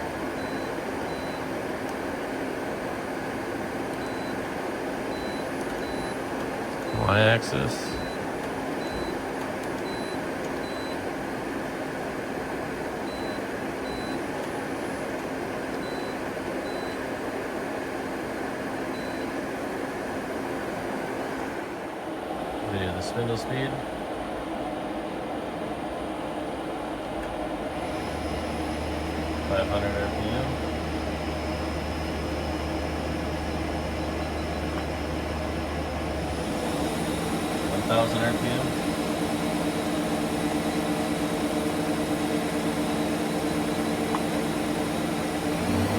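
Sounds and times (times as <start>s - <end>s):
lathe running with steady hum: 27.5s - 45.9s.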